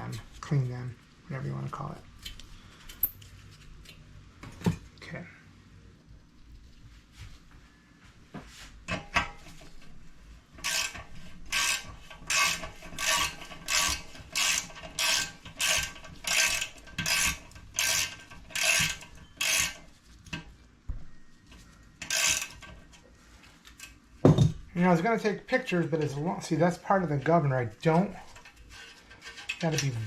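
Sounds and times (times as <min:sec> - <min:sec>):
ratchet wrench clicking: 0:10.6 - 0:19.8, 0:22.0 - 0:22.6.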